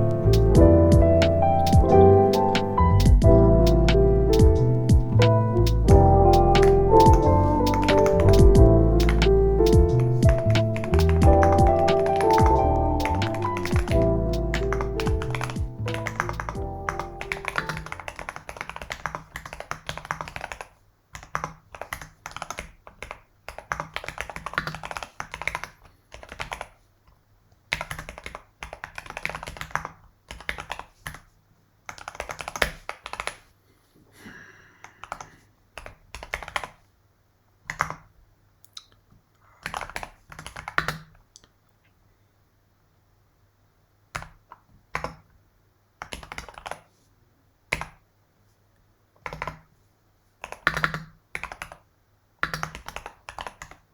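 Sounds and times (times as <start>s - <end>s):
typing on computer keyboard: 6.4s - 33.5s, 34.9s - 36.9s, 37.7s - 38.1s, 39.6s - 41.2s, 44.1s - 45.4s, 46.0s - 46.9s, 47.7s - 48.0s, 49.2s - 49.7s, 50.4s - 53.9s.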